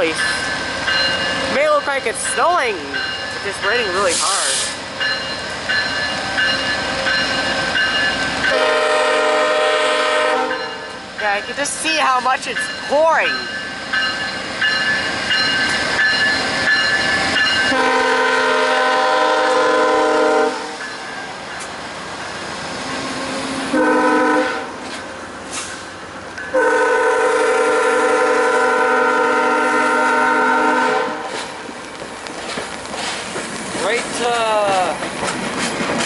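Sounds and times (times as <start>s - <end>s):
crossing bells ringing: 0.0s - 9.3s, 10.4s - 18.9s, 20.5s - 22.5s
locomotive horn blasts: 8.5s - 10.8s, 17.7s - 20.8s, 23.7s - 24.8s, 26.5s - 31.3s.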